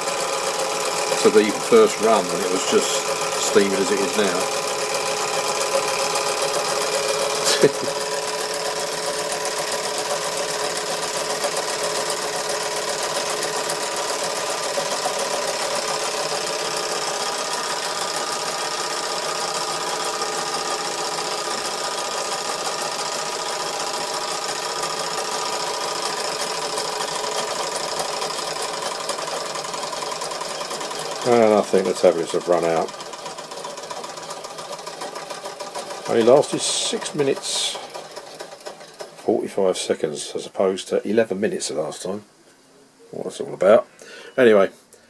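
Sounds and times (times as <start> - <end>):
toy steam engine chuffing: 0.0 - 40.4
whine of driven models: 0.9 - 4.7, 30.4 - 32.9, 34.4 - 39.8.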